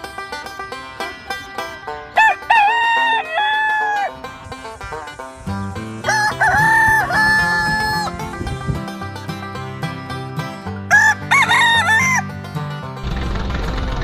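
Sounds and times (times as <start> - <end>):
upbeat banjo music: 0.0 - 14.0
rooster crowing: 2.2 - 4.2, 6.0 - 8.2, 10.9 - 12.3.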